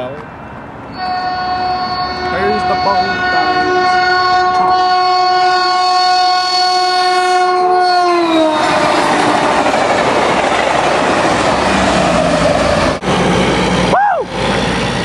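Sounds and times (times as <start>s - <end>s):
train horn blast: 0.9s - 9.7s
rushing rattle of train cars: 8.3s - 15.0s.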